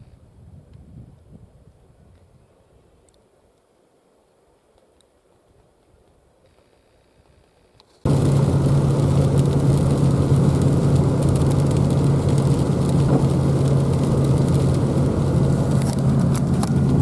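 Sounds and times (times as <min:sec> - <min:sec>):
faint clicks: 0:03.0 - 0:03.7
road noise: 0:08.1 - 0:17.0
vehicle engine drone: 0:08.1 - 0:17.0.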